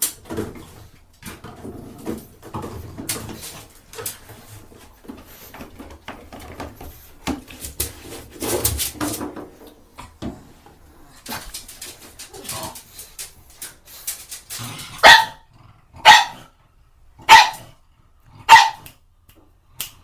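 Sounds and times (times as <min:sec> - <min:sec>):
plastic bottles clattering in tub: 0:00.0 - 0:10.4.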